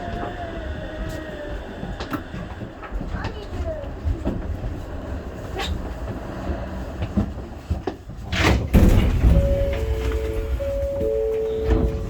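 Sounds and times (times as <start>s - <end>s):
train low rumble: 0.0s - 12.0s
electronic chime tones: 9.4s - 12.0s.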